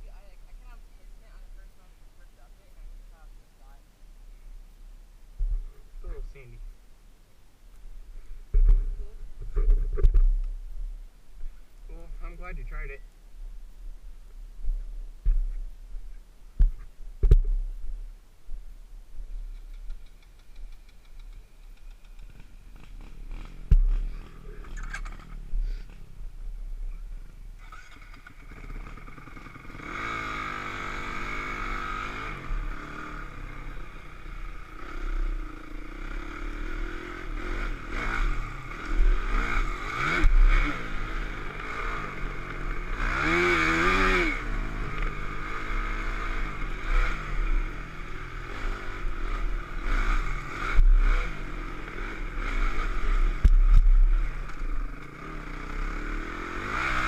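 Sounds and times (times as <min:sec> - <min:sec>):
dirt bike engine revving: 0:21.0 - 0:26.2, 0:27.6 - 0:57.0.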